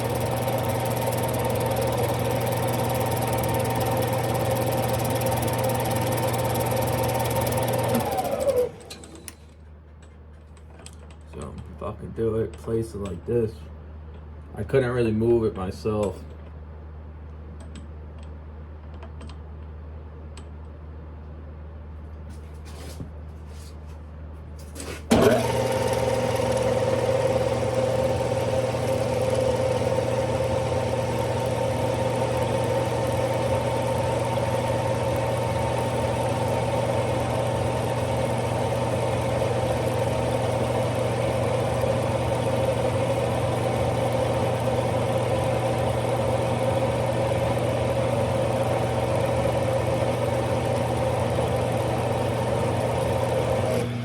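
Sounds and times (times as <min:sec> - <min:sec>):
lathe running with whining hum: 0:00.0 - 0:09.4, 0:25.1 - 0:54.0.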